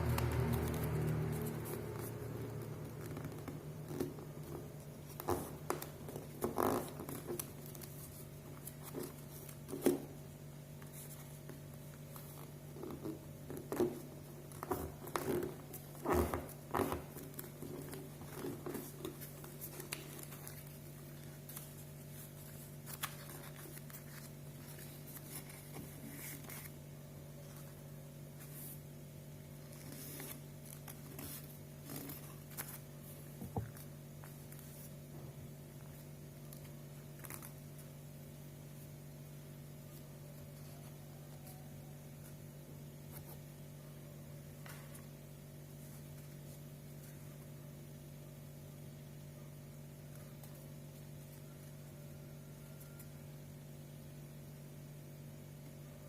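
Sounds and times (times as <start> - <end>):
paper rustling and creasing: 0.0 - 38.0, 44.6 - 47.5
steady low hum: 0.0 - 56.0.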